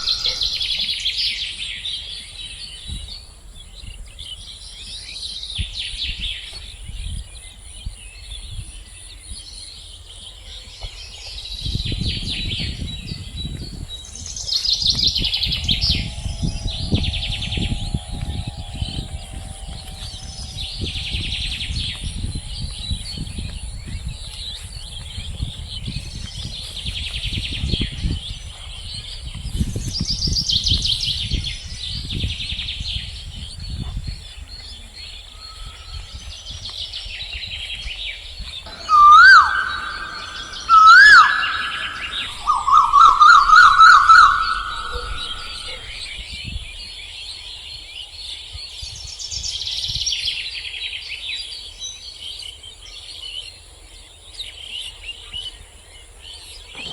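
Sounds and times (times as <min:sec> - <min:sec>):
small birds chirping: 0:00.0 - 0:49.3
siren-like tones: 0:15.1 - 0:24.3, 0:38.7 - 0:46.1.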